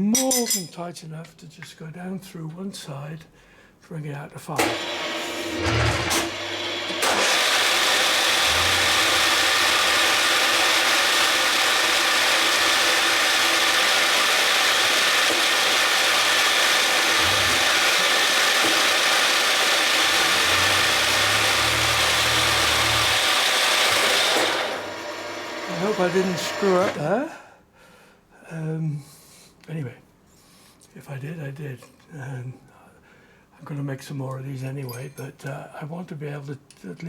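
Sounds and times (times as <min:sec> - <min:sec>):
milling machine spindle whine: 0:04.6 - 0:27.1
drill cutting through plastic: 0:04.6 - 0:27.2.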